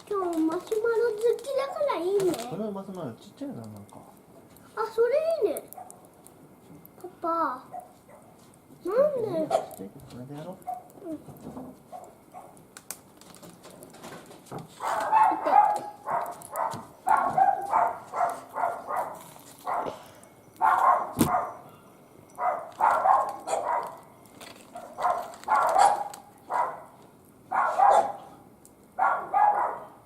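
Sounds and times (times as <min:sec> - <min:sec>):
dog barking: 0:05.7 - 0:06.0, 0:07.7 - 0:08.4, 0:09.4 - 0:09.8, 0:10.6 - 0:11.0, 0:11.9 - 0:12.6, 0:14.8 - 0:20.0, 0:20.6 - 0:21.6, 0:22.4 - 0:24.0, 0:24.7 - 0:28.4, 0:29.0 - 0:30.0
sharp crack: 0:12.7 - 0:17.2.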